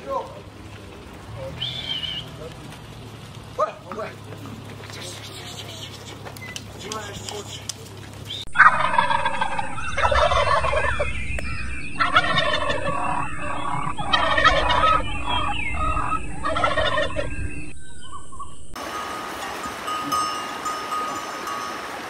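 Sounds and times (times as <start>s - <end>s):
turkeys gobbling: 1.4s - 2.5s, 3.6s - 19.9s.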